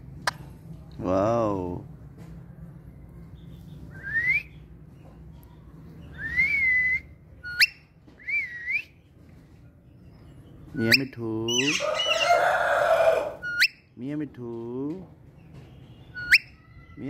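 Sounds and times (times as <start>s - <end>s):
parrot whistling: 6.2s - 8.9s, 10.9s - 12.4s, 13.4s - 13.8s, 16.1s - 16.6s.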